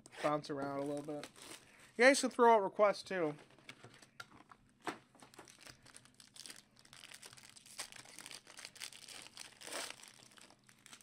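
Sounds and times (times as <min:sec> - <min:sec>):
plastic wrap crinkling and tearing: 0:00.7 - 0:01.7, 0:05.2 - 0:11.0.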